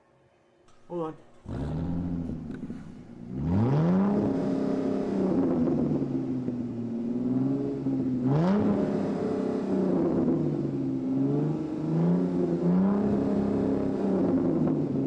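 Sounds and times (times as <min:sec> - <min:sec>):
vehicle engine revving: 0:01.2 - 0:15.0.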